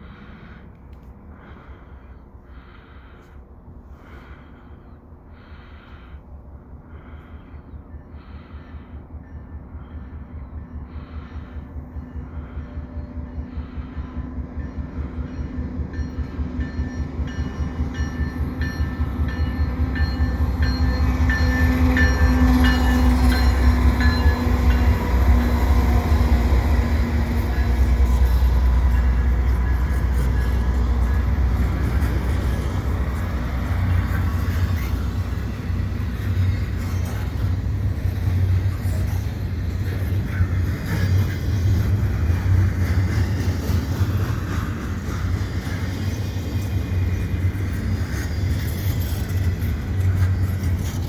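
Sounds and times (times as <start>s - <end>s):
diesel locomotive engine rumble: 0.0s - 51.0s
freight cars rolling by: 10.9s - 51.0s.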